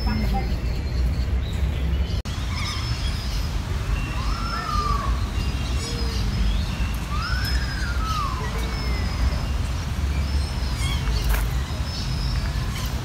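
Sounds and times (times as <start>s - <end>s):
birds chirping and whistling: 0.0s - 13.0s.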